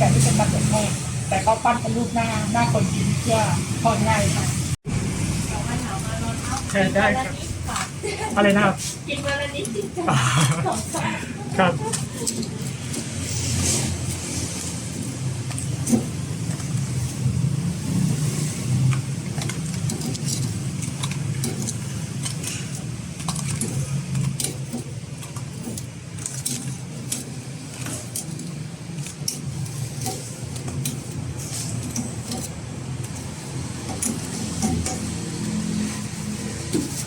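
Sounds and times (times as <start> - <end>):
metal utensils clinking: 18.6 - 37.0.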